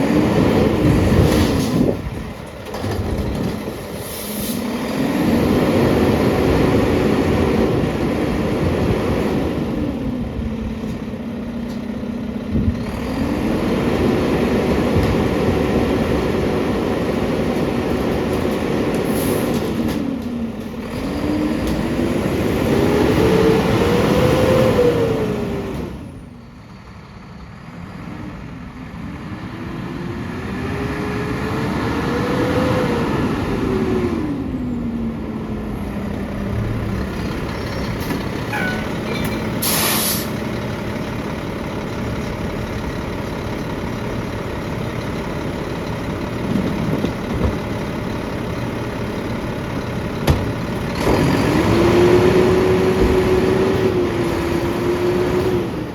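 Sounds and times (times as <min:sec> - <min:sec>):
truck engine revving and idling: 0:00.0 - 0:55.9
sharp air hiss: 0:39.6 - 0:40.4.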